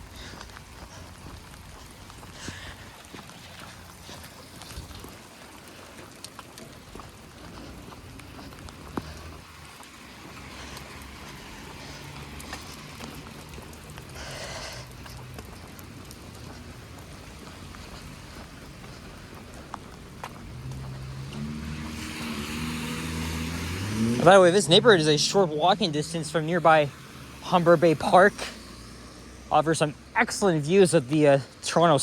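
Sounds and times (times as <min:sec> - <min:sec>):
rain falling: 0:00.0 - 0:32.0
raindrop ticks: 0:00.1 - 0:23.1.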